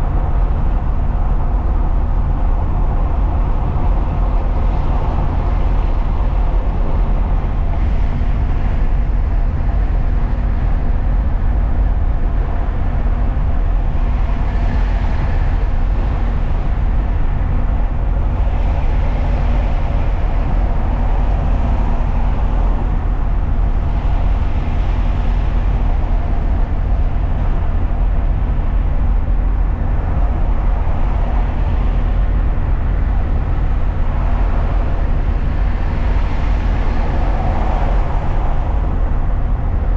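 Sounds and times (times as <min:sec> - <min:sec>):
faint constant hum: 0:00.0 - 0:39.9
truck road and engine rumble: 0:00.0 - 0:39.9.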